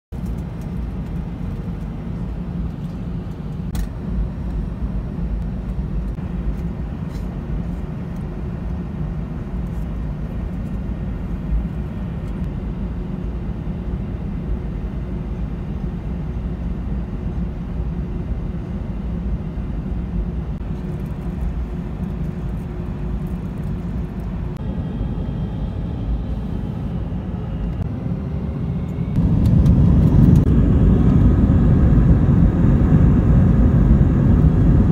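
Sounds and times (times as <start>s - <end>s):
jet engine rumble in cabin: 0.2s - 34.9s
jet engines spooling up: 20.7s - 34.9s.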